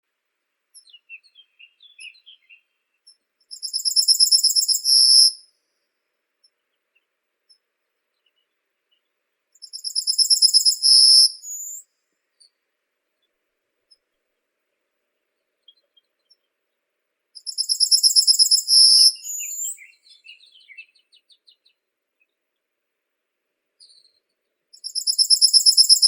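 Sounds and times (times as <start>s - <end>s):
songbird trilling and chirping: 0.8s - 5.4s, 8.2s - 11.8s, 17.4s - 22.4s, 24.8s - 26.0s.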